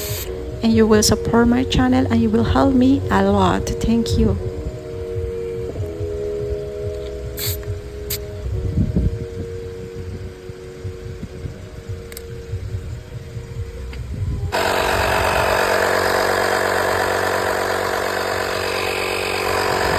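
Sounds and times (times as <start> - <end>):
air compressor buzzing drone: 0.0 - 19.9
low uneven rumble: 0.0 - 19.9.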